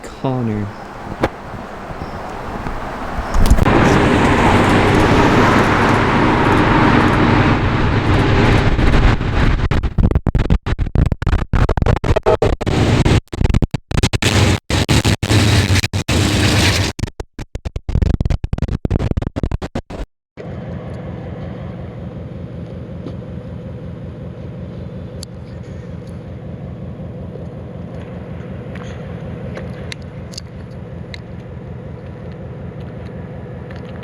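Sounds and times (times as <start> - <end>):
engine running with low rumble: 0.0 - 10.8, 20.4 - 34.0
choppy stuttering burst: 3.4 - 20.0.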